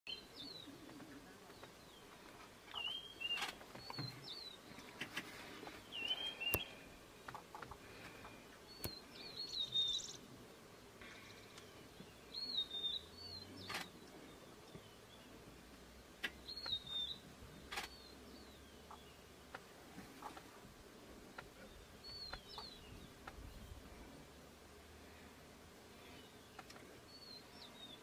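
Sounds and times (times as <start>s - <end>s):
birds whistling calls: 5.9s - 6.8s
sharp clicks: 17.7s - 18.0s.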